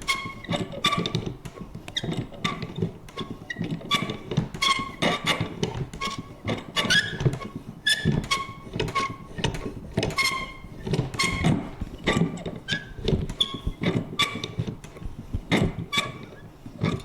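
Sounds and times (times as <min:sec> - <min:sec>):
squeaky lever creak: 0:02.0 - 0:05.4, 0:06.0 - 0:14.6.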